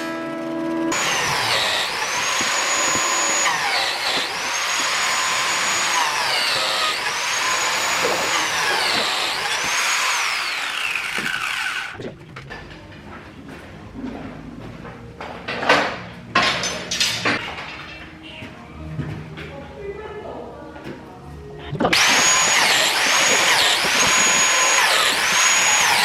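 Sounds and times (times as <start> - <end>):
power tool motor whining: 0.9 - 12.0, 21.9 - 26.0.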